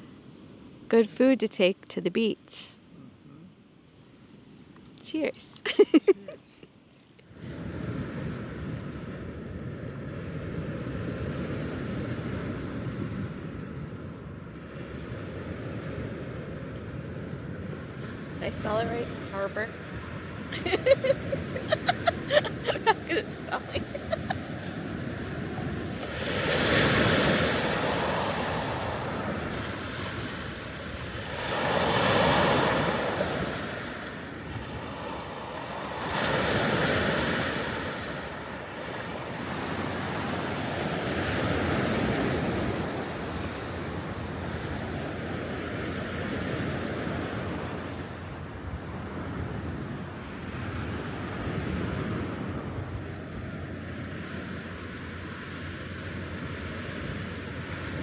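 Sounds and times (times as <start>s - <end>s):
waves washing onto shore: 7.3s - 58.0s.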